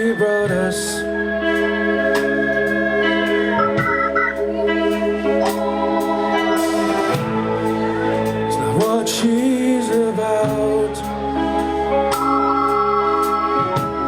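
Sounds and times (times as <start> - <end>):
organ-like chords: 0.0 - 14.0
rock band playing instrumental: 0.0 - 14.0
drum hits: 3.6 - 4.4.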